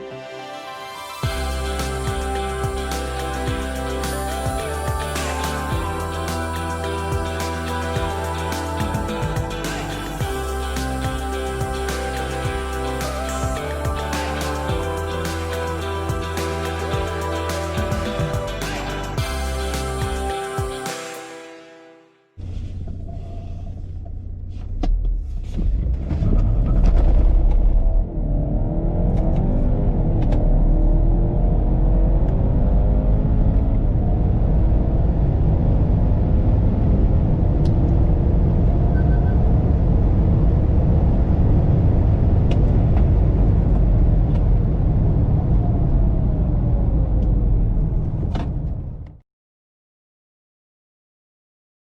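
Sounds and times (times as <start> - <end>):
car engine accelerating: 24.0 - 49.1.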